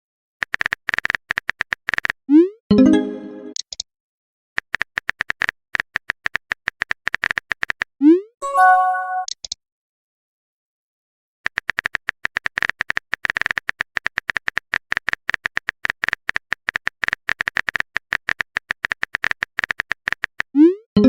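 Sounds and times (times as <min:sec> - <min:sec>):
keyboard typing clicks: 0:11.5 - 0:20.5.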